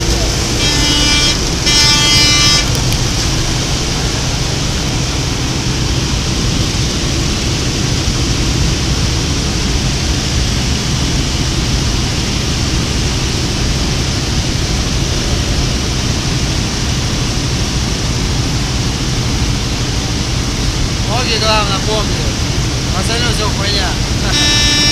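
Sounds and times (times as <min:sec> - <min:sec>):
aircraft engine drone: 0:00.0 - 0:24.9.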